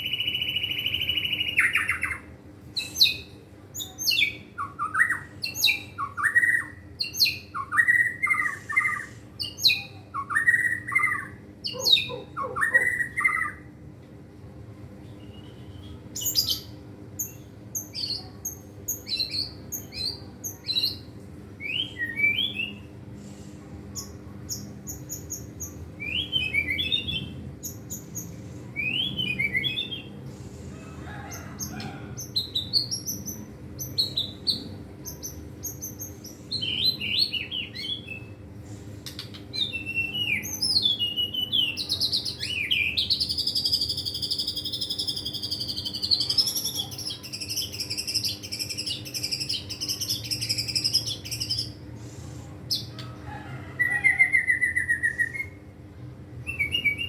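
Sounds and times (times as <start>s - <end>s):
bird singing whistled phrases: 21.6s - 22.9s, 26.0s - 27.3s, 28.8s - 30.1s, 39.6s - 51.7s, 53.9s - 55.6s, 56.5s - 57.0s.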